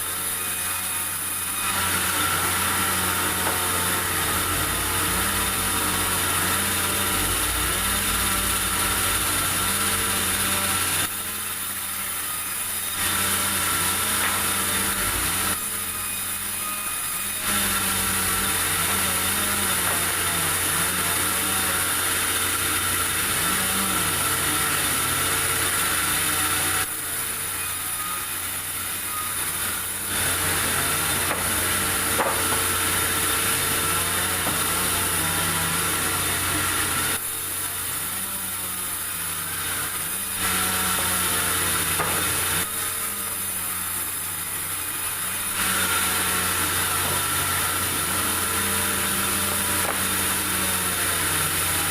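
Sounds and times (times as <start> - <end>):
sawmill sawing through wood: 0.0 - 51.9.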